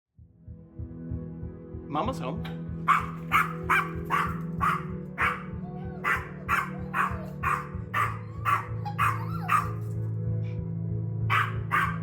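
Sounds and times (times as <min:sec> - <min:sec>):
small dogs barking: 0:02.8 - 0:10.0, 0:11.3 - 0:12.0.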